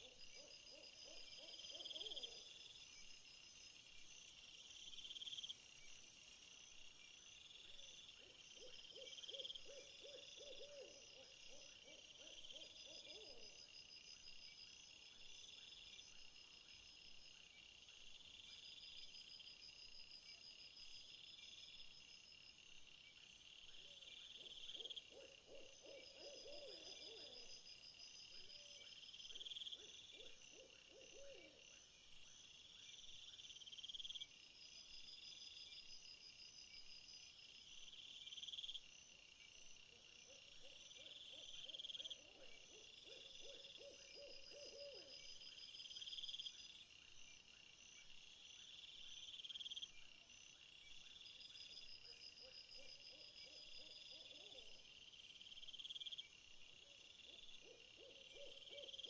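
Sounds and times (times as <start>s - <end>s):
insect trills: 0.0s - 59.0s.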